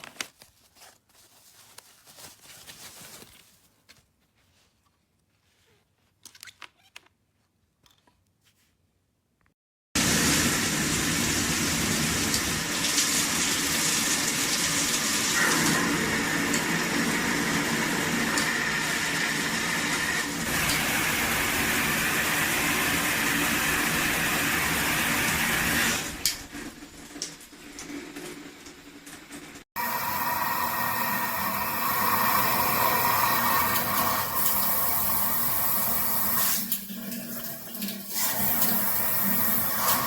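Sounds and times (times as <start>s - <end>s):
shower head spraying water: 38.1s - 40.0s.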